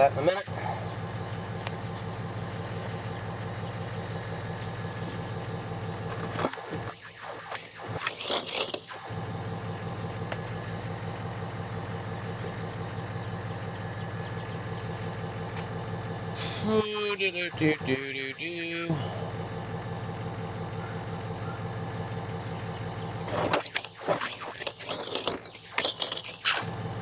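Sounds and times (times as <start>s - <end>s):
motor humming: 0.0s - 25.7s, 26.5s - 27.0s
rustling clatter: 4.5s - 9.1s, 23.1s - 26.9s.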